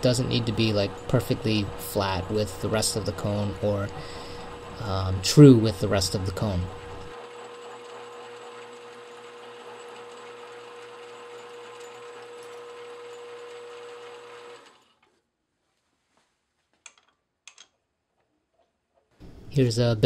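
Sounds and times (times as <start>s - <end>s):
lathe motor whine: 0.0s - 14.9s.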